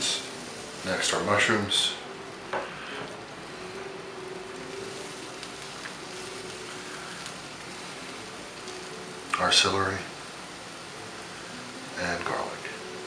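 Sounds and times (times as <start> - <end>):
vegetables sizzling in a skillet: 0.0 - 13.0.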